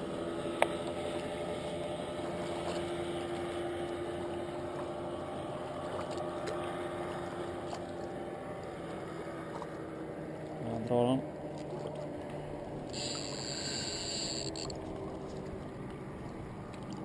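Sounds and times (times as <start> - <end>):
motor humming: 12.5 - 16.9.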